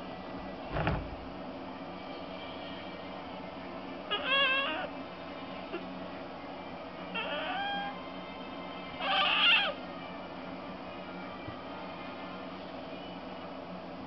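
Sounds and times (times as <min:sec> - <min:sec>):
cat meowing: 0:04.1 - 0:04.9, 0:09.0 - 0:09.8.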